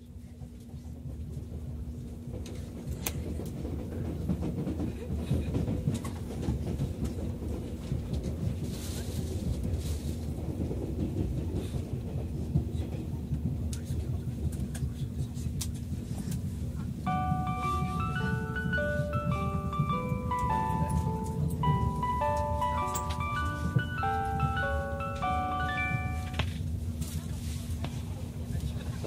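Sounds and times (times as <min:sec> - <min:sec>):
train running rumble: 0:00.0 - 0:29.0
rail-joint clicks: 0:02.3 - 0:08.4, 0:17.1 - 0:26.7.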